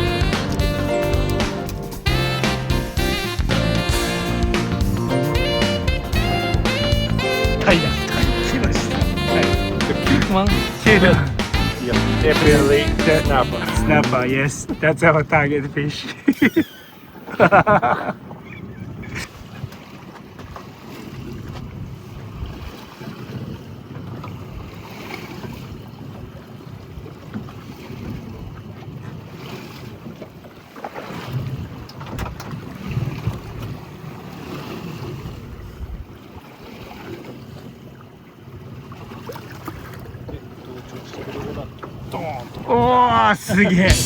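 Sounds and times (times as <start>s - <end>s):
sea water washing against boat: 0.0s - 44.0s
wind buffeting microphone: 35.0s - 36.2s.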